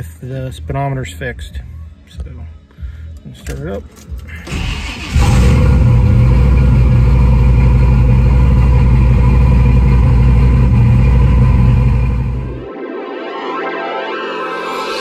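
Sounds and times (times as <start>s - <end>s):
car engine idling: 4.2s - 12.6s.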